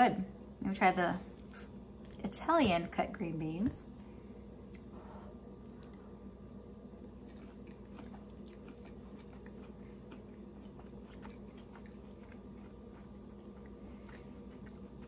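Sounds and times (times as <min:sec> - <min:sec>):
low hum: 0:00.0 - 0:15.0
person chewing green beans: 0:04.6 - 0:15.0.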